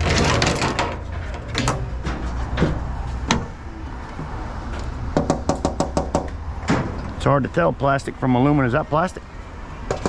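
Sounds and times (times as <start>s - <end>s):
sharp clicks and knocks: 0.0s - 3.5s.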